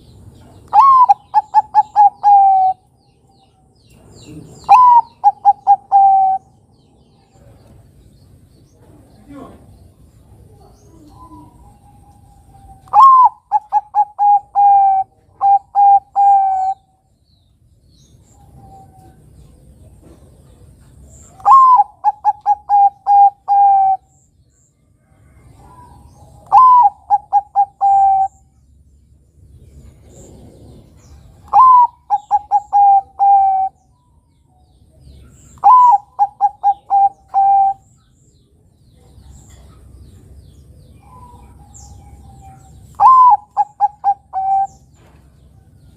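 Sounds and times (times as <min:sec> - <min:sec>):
dove cooing: 0:00.7 - 0:02.9, 0:03.9 - 0:06.6, 0:10.4 - 0:17.0, 0:21.3 - 0:24.2, 0:25.4 - 0:28.6, 0:29.8 - 0:33.9, 0:35.2 - 0:37.9, 0:40.9 - 0:45.1.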